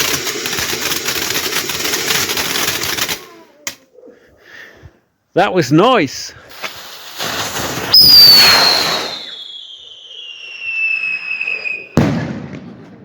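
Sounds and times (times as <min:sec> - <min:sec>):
firework hiss: 0:00.0 - 0:03.3, 0:06.3 - 0:12.4
firework bang: 0:06.6 - 0:09.9, 0:10.6 - 0:13.0
firework whistle falling in pitch: 0:07.9 - 0:12.2.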